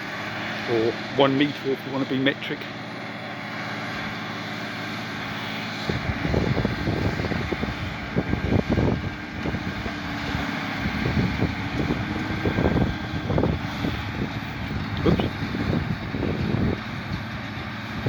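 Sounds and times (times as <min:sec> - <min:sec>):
tractor engine drone: 0:00.0 - 0:18.0
wind buffeting microphone: 0:05.7 - 0:18.0.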